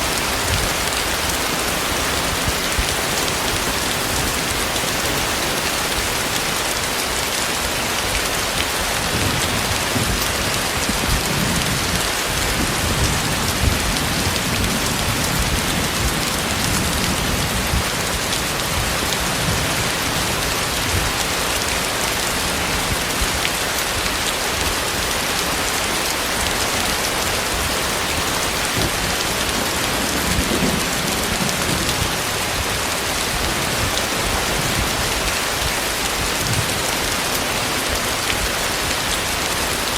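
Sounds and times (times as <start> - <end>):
heavy rain: 0.0 - 39.9
thunder rumbles: 8.7 - 23.4, 28.5 - 39.0.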